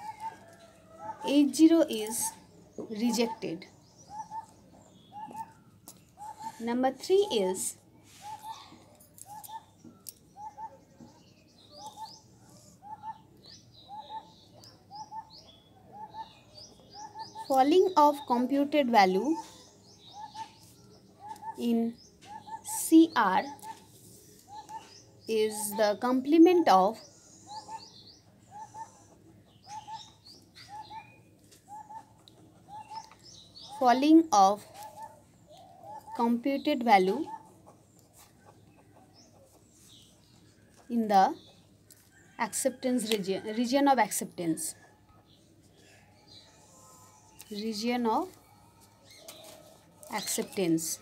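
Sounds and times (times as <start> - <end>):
higher bird chirps: 8.1 - 37.5.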